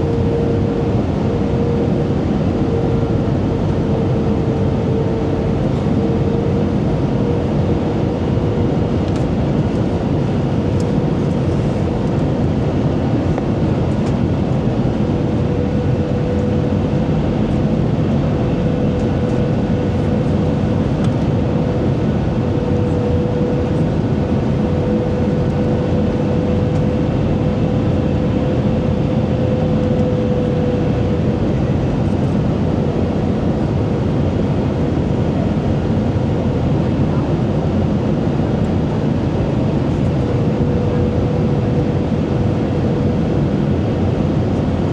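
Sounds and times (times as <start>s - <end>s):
airliner cabin engine rumble: 0.0s - 44.9s
mid-pitched hum: 0.0s - 44.9s.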